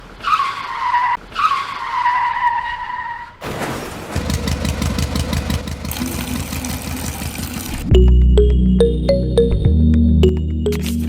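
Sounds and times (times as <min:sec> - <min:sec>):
music with steady beat: 0:07.9 - 0:11.0.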